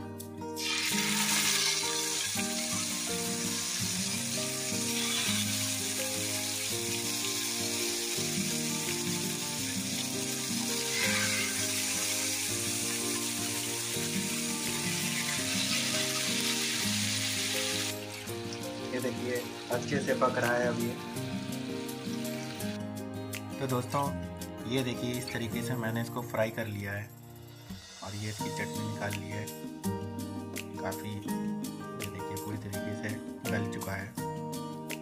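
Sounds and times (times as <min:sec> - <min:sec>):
chicken sizzling in hot oil: 0:00.6 - 0:22.8.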